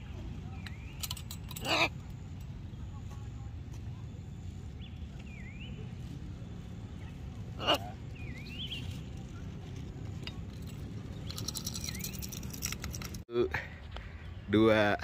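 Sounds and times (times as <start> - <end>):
steady low rumble: 0.0 - 13.2
bird chirping whistled notes: 8.1 - 9.1.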